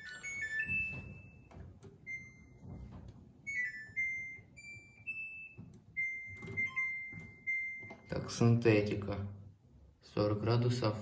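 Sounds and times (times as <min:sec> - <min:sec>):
washing machine panel beeping: 0:00.0 - 0:08.5.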